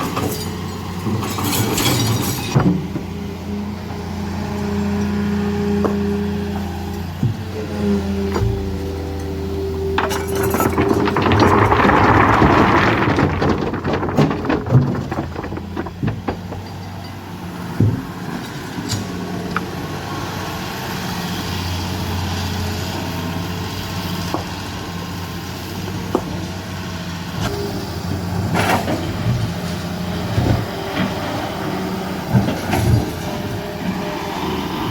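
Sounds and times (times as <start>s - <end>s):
heavy diesel engine running: 2.8s - 18.2s
knocks and clanks: 10.0s - 18.2s.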